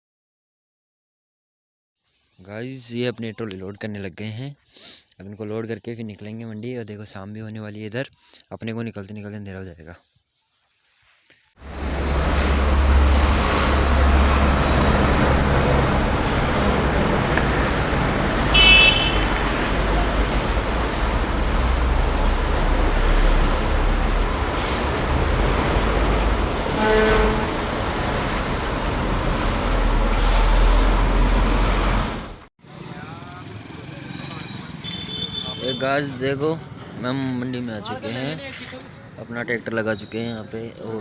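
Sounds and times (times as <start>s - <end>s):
lower-pitched horn: 11.6s - 32.3s
horn tooting: 11.6s - 36.2s
vehicle road noise rumble: 11.6s - 39.6s.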